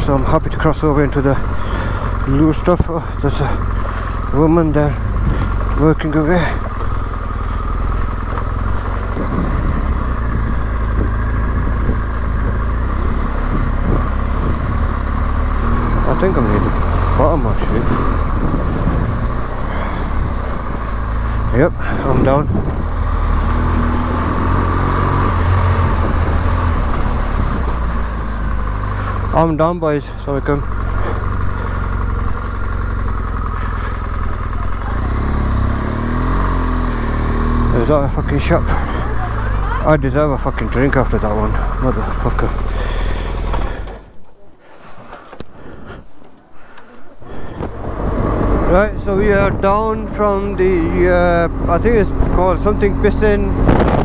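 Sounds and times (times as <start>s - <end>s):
motorcycle engine at low revs: 0.0s - 44.4s, 45.3s - 54.0s.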